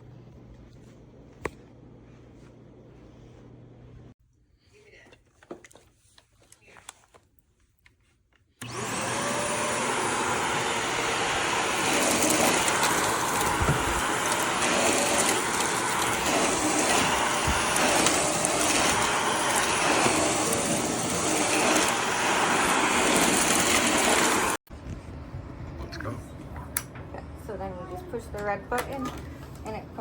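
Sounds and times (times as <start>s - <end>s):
vacuum cleaner running: 8.6s - 24.6s.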